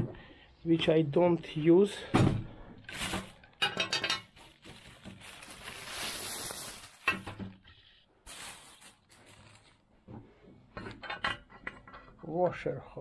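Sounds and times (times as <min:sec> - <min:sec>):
objects knocking and clattering: 0:02.2 - 0:05.6, 0:06.9 - 0:07.8, 0:10.0 - 0:12.2
rustling: 0:02.9 - 0:10.4.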